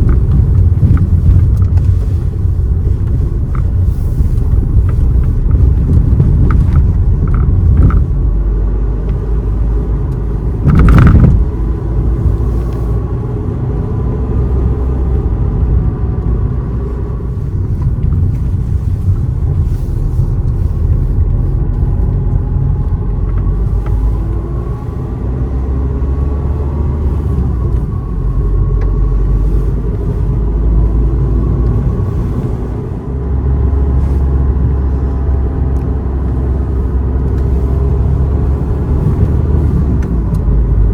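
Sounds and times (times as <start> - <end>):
car engine rumble: 0.0 - 40.9
road noise: 0.0 - 40.9
loud rush or thump: 10.6 - 11.5.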